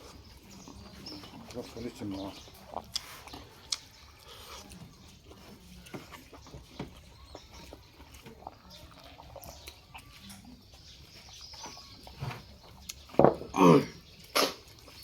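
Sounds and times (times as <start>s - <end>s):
chewing: 0.0s - 15.0s
wet mouth clicks: 2.6s - 4.8s, 14.2s - 14.9s.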